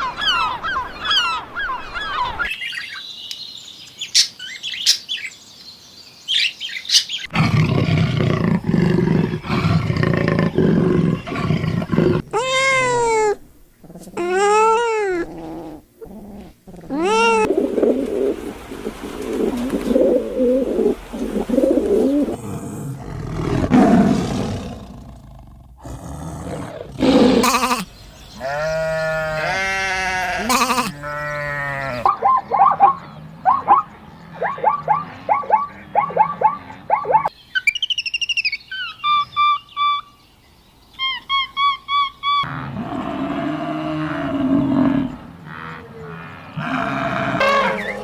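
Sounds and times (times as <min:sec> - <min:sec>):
long falling animal calls: 0:08.8 - 0:25.9, 0:41.0 - 0:48.0
low rough animal calls: 0:42.4 - 0:48.0.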